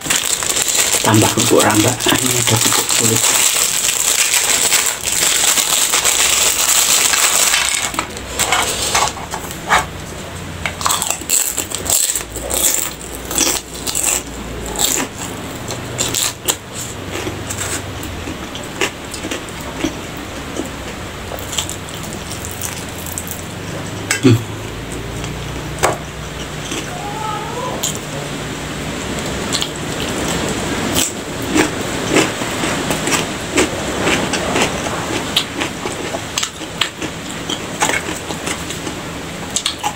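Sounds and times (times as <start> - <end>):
plastic bag crinkling: 0.0 - 8.7
crunching chews: 10.8 - 23.4, 29.5 - 39.9.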